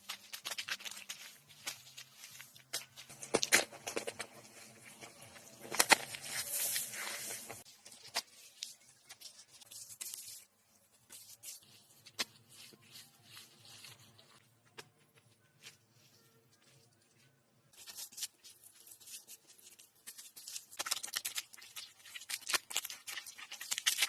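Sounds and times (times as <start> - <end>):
rustling and scraping: 0.0 - 10.5.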